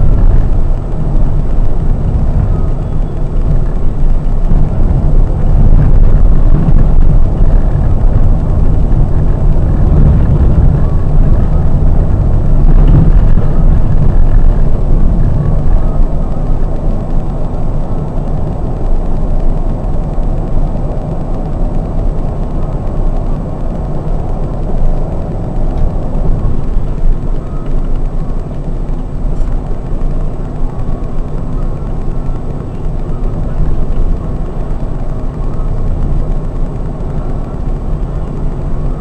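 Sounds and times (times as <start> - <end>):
coach engine and road noise: 0.0 - 39.0.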